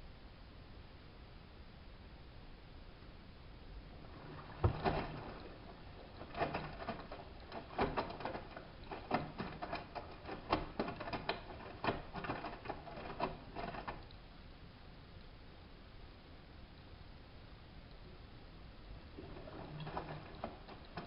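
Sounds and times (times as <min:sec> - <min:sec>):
wet laundry and water sloshing: 0:03.8 - 0:14.0, 0:19.0 - 0:21.0
washing machine drum turning: 0:04.0 - 0:14.0, 0:19.2 - 0:21.0.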